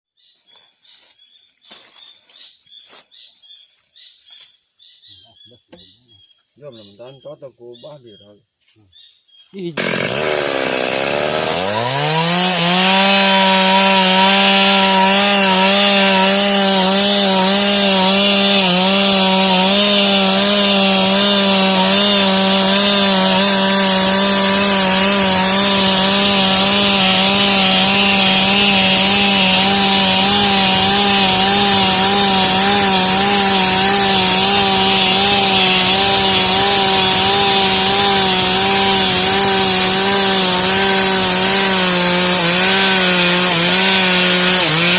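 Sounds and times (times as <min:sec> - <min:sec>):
chainsaw cutting wood: 0:09.8 - 0:44.9.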